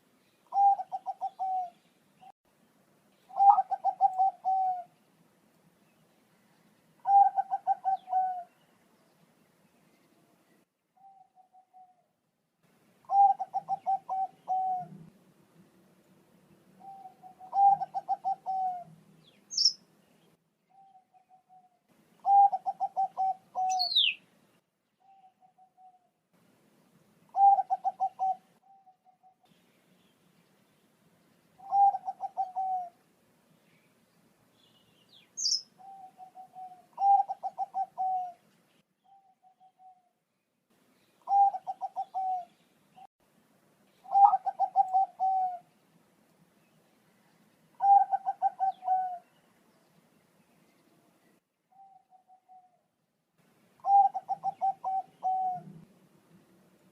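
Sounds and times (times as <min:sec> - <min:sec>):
dove cooing: 0:00.5 - 0:01.8, 0:03.3 - 0:05.0, 0:07.0 - 0:08.6, 0:11.0 - 0:12.1, 0:13.1 - 0:15.1, 0:16.8 - 0:19.0, 0:20.7 - 0:24.2, 0:27.3 - 0:29.4, 0:31.6 - 0:33.0, 0:35.4 - 0:38.4, 0:41.2 - 0:43.1, 0:44.0 - 0:45.7, 0:47.8 - 0:49.3, 0:51.7 - 0:52.8, 0:53.8 - 0:55.9
high bird chirps: 0:19.3 - 0:19.8, 0:22.2 - 0:24.2, 0:34.6 - 0:38.2.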